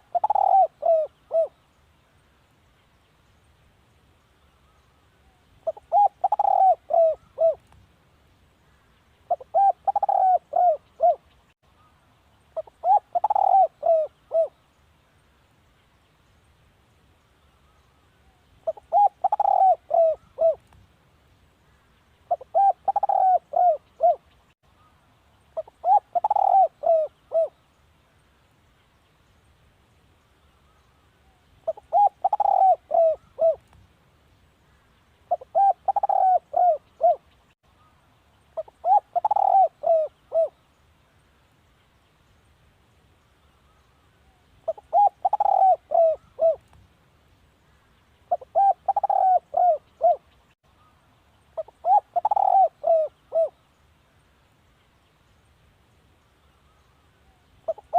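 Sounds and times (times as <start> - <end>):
dove cooing: 0.0 - 1.6, 5.6 - 7.6, 9.3 - 11.2, 12.6 - 14.6, 18.6 - 20.6, 22.3 - 24.3, 25.6 - 27.6, 31.6 - 33.6, 35.3 - 37.3, 38.6 - 40.6, 44.7 - 46.6, 48.3 - 50.2, 51.6 - 53.6, 57.6 - 57.9.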